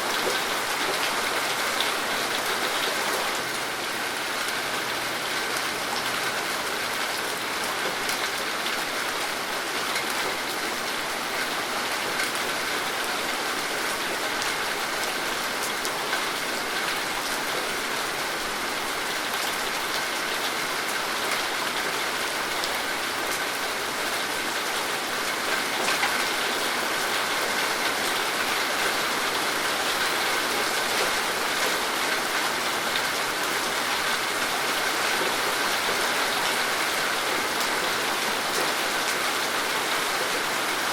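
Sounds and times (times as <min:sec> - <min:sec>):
steady rain pattering: 0:00.0 - 0:40.9.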